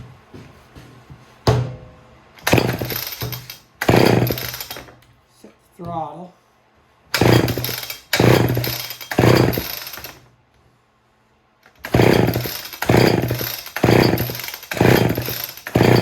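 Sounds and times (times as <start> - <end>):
chainsaw engine cranking: 2.4 - 5.0, 7.2 - 10.2, 11.7 - 16.0
starter cord pulls: 2.4 - 5.0, 7.2 - 10.2, 11.7 - 16.0.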